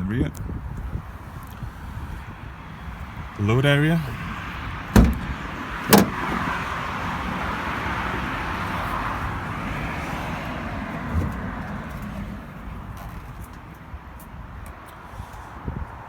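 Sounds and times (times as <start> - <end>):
road traffic: 0.3 - 16.0
loud clunk: 4.9 - 6.5
soft thump: 4.9 - 6.5.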